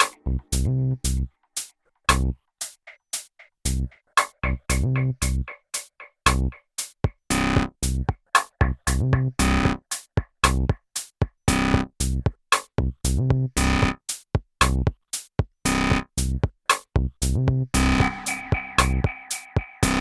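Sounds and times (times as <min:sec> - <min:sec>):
gated synth stabs: 0:17.8 - 0:20.0.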